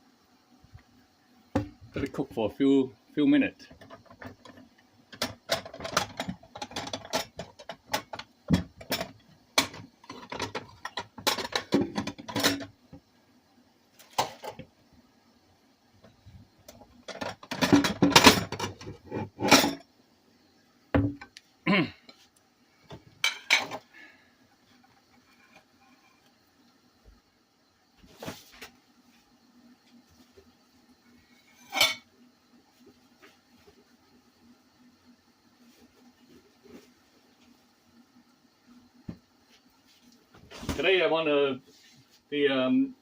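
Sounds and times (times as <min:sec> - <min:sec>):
cookware and utensils clattering: 0:03.6 - 0:12.7, 0:17.0 - 0:19.8, 0:23.2 - 0:23.9, 0:31.5 - 0:32.1.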